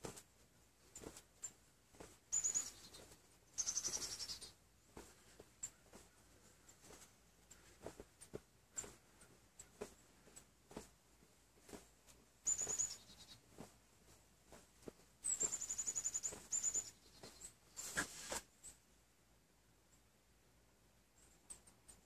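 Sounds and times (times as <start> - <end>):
small bird trilling: 2.3 - 3.0, 3.6 - 4.5, 12.5 - 13.4, 15.3 - 17.4.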